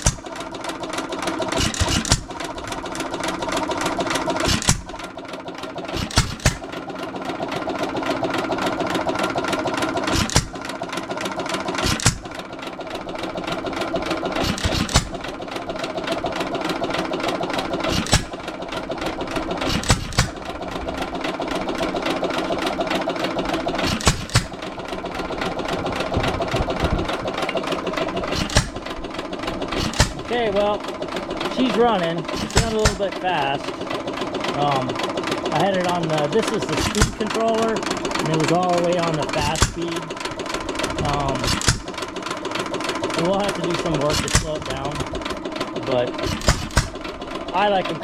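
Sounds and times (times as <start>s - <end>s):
stationary gas engine firing bangs: 0.0s - 0.4s, 1.4s - 5.1s, 5.8s - 6.8s, 10.0s - 10.6s, 11.7s - 33.9s, 36.4s - 38.3s, 38.9s - 42.2s, 43.3s - 45.3s, 46.1s - 47.4s
engine mechanical clatter: 0.0s - 48.0s.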